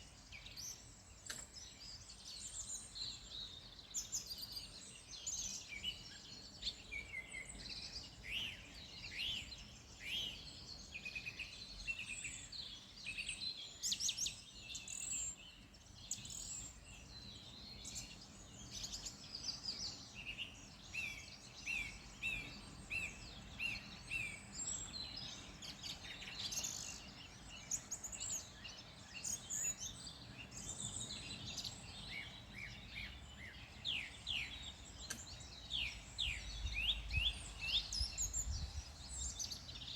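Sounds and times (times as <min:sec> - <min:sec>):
birds singing and chirping: 0:00.0 - 0:39.9.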